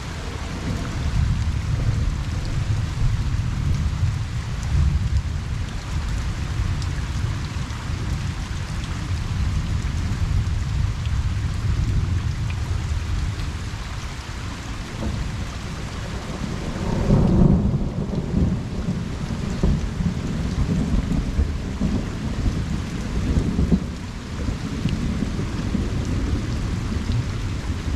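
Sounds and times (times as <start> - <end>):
thunder rumbling: 0.0 - 13.8, 14.5 - 27.9
rain falling on a pond: 0.0 - 27.9.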